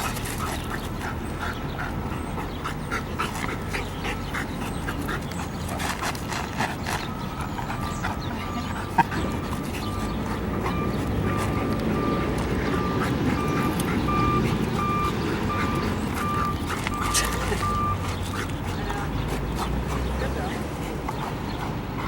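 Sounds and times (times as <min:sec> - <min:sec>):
dog whining and squeaking: 0:00.0 - 0:19.8
dog sniffing: 0:00.0 - 0:22.0
pulsing high beep: 0:09.2 - 0:18.0.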